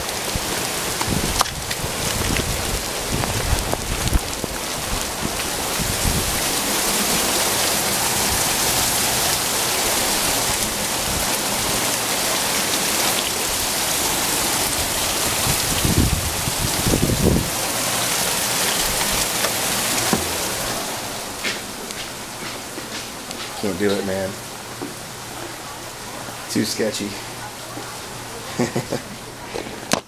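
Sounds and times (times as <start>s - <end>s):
heavy rain falling: 0.0s - 30.0s.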